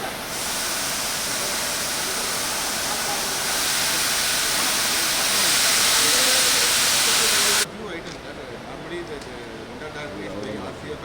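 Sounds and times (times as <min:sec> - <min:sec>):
steam locomotive venting steam: 0:00.0 - 0:07.7.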